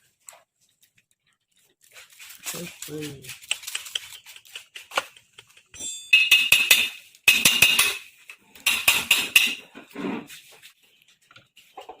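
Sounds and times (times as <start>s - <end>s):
metal tools clinking together: 5.7s - 9.7s.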